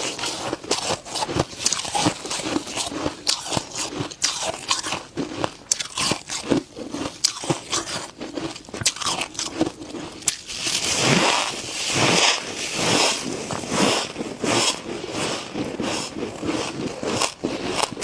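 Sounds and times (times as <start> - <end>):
frost being chewed crunching: 0.0 - 18.0.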